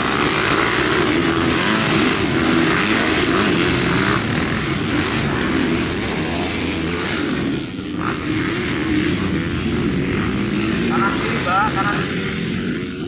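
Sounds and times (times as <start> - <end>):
motocross bike engines buzzing: 0.0 - 13.0.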